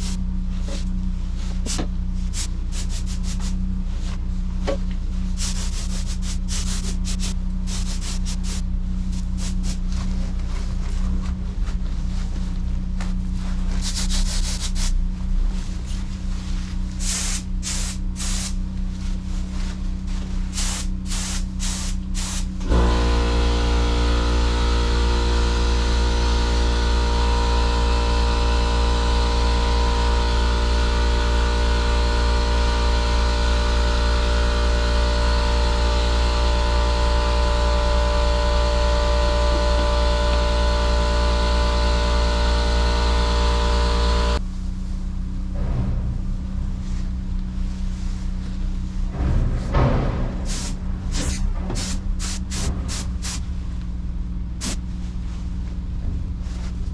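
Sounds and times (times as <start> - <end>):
spray gun hissing bursts: 0.0 - 0.2, 1.6 - 3.6, 5.3 - 8.6, 9.2 - 9.8, 13.8 - 15.0, 17.0 - 18.6, 20.5 - 25.2, 50.4 - 53.4
motor hum: 0.0 - 56.9.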